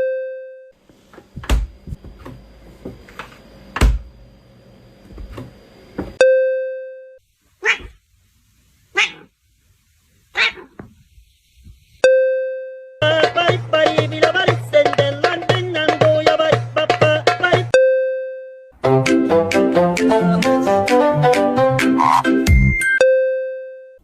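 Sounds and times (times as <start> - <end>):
knocks and thumps: 1.2 - 3.0
dog barking: 7.6 - 8.0, 8.9 - 9.3, 10.3 - 10.8.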